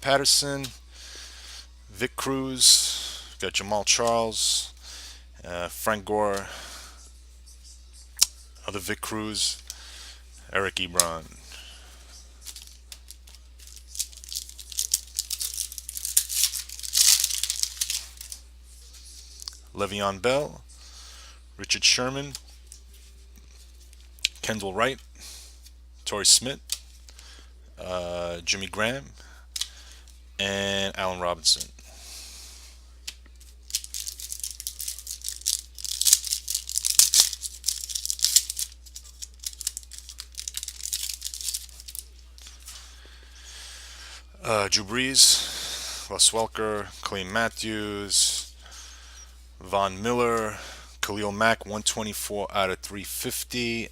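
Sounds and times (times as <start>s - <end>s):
cards and foil packaging crinkling: 10.8s - 19.7s, 33.1s - 43.6s.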